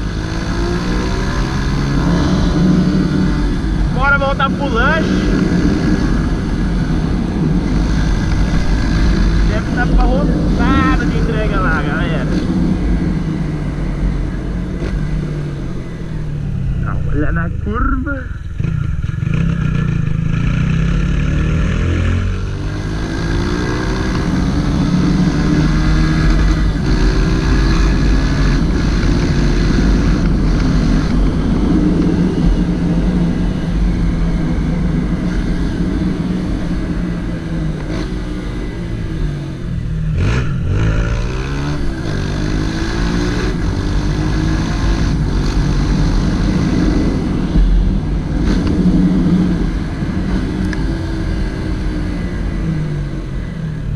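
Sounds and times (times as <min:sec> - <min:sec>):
motorcycle engine revving: 0:00.0 - 0:53.9
wind and road rushing: 0:00.0 - 0:53.9.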